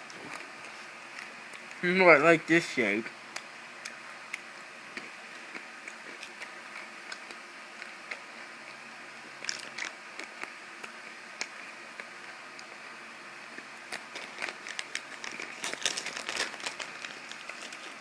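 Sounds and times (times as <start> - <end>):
steady low hiss: 0.0 - 5.3
pretzel crunching: 9.4 - 10.5, 13.8 - 18.0.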